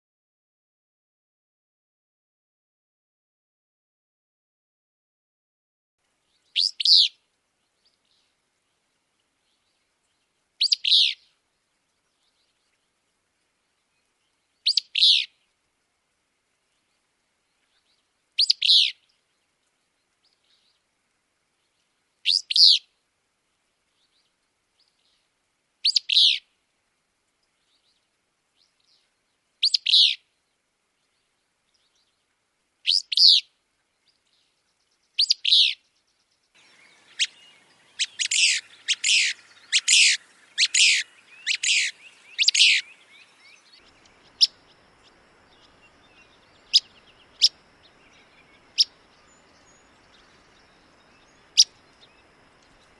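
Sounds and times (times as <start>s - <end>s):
faint hiss: 6.0s - 52.9s
willow flycatcher singing: 6.2s - 13.0s, 13.6s - 15.5s, 16.7s - 20.8s, 21.6s - 22.9s, 24.0s - 26.5s, 27.4s - 52.9s.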